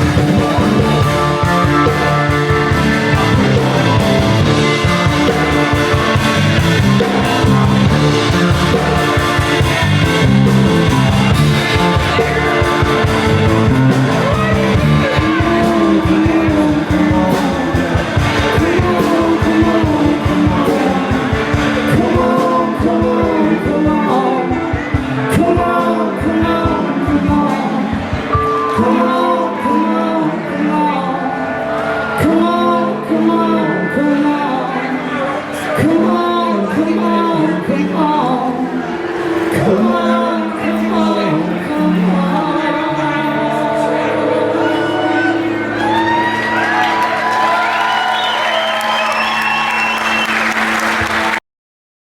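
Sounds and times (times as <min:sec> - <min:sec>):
drum beat: 0:00.0 - 0:22.4
bending melody line: 0:00.0 - 0:35.0, 0:35.9 - 0:48.7
electric guitar: 0:00.0 - 0:50.3.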